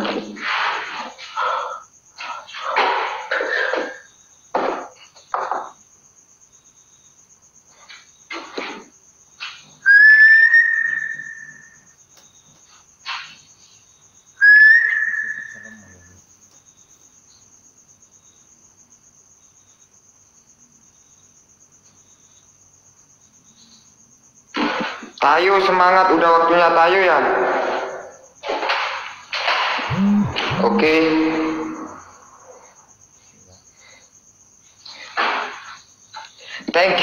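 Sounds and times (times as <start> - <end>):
cricket chirping: 0.0 - 37.0
long whistled notes: 9.8 - 11.8, 14.4 - 16.1, 29.9 - 32.6.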